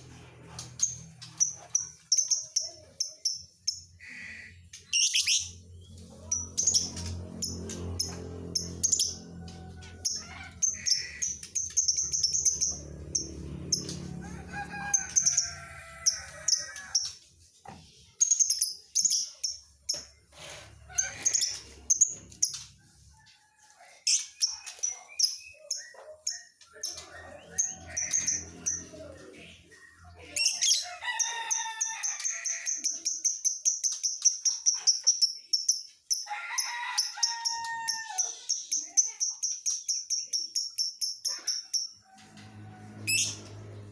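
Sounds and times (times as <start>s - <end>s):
lovebird chirping: 4.9s - 5.6s.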